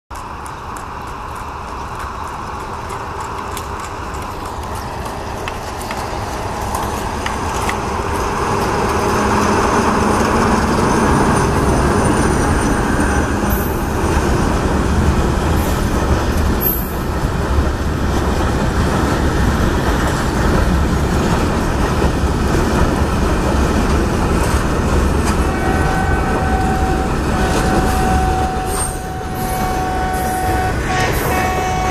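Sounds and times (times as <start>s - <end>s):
wagons rolling past: 0.1s - 15.0s
diesel locomotive passing: 0.1s - 31.9s
steady high tone: 25.5s - 31.9s.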